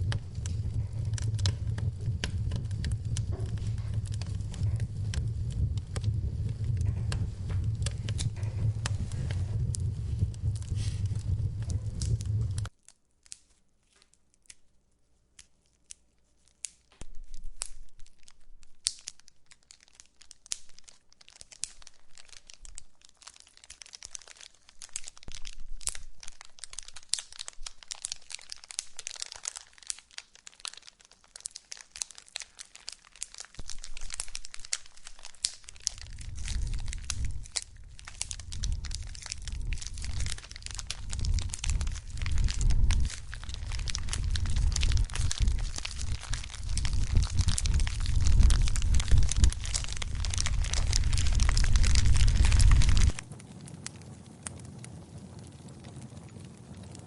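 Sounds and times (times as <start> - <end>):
low rumble of flames: 0.0 - 12.7, 32.8 - 57.0
wood fire crackling and popping: 0.0 - 13.4, 16.9 - 57.0.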